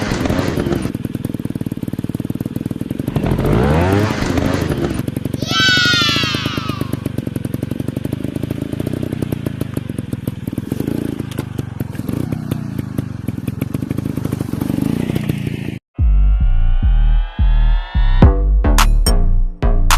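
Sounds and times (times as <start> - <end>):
dirt bike engine revving: 0.0 - 15.8
high falling tone: 5.4 - 7.0, 16.0 - 19.9.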